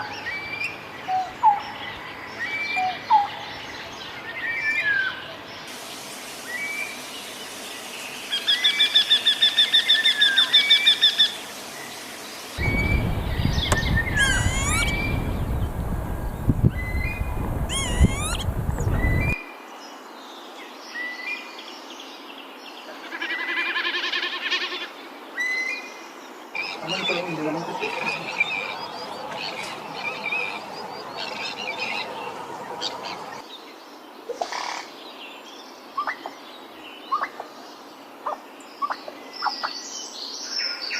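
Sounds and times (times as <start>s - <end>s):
swooping high bird calls: 4.6s - 19.4s, 26.5s - 33.5s
fast loud bird calls: 5.7s - 19.4s, 26.6s - 33.4s
bird chirps: 8.3s - 15.8s, 16.7s - 19.4s, 26.6s - 33.4s
heavy low rumble: 12.6s - 19.4s.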